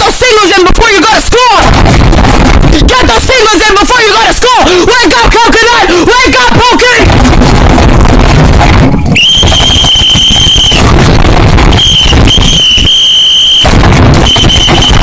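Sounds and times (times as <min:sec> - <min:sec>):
loud rough low noise: 0:01.6 - 0:03.2, 0:07.0 - 0:15.0
high squealing tone: 0:09.1 - 0:15.0.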